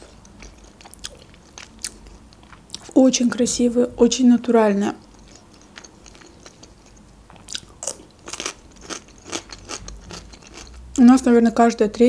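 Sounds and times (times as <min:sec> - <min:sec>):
crunchy chewing of cucumber: 0:00.0 - 0:03.0, 0:05.0 - 0:10.9.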